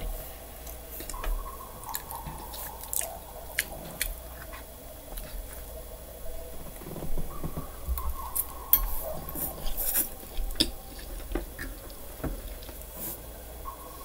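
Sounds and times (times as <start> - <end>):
chewing clicks and smacks: 0.6 - 5.6.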